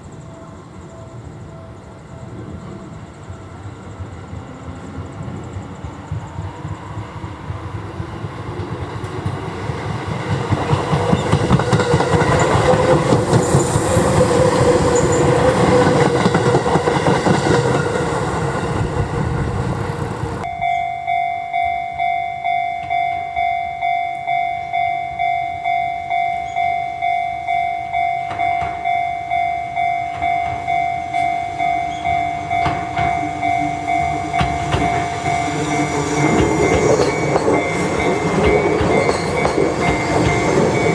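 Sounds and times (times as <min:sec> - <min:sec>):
electric train running past: 0:00.0 - 0:40.9
train running: 0:00.0 - 0:40.9
level crossing warning bell: 0:09.5 - 0:40.9.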